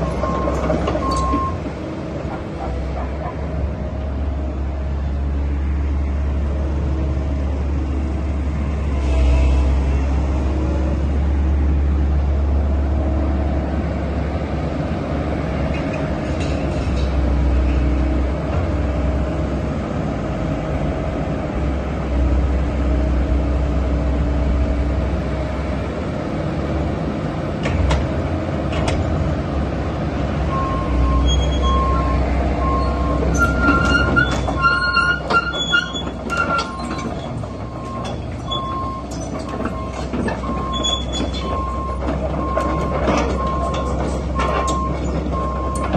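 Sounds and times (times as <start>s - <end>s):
steel tracks squealing and clanking: 0.0s - 1.6s, 30.5s - 45.9s
excavator engine humming: 0.0s - 45.9s.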